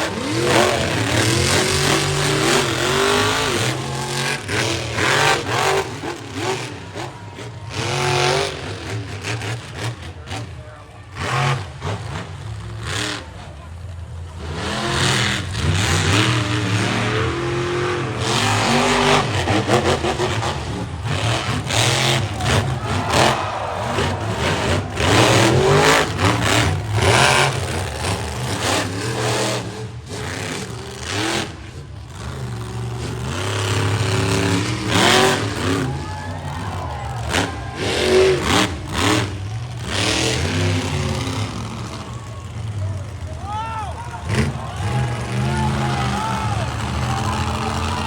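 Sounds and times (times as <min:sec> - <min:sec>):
monster truck engine revving: 0:00.0 - 0:48.0.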